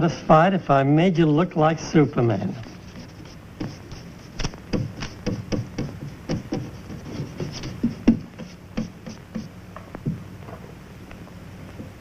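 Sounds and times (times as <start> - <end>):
pencil sketching on paper: 2.6 - 9.5.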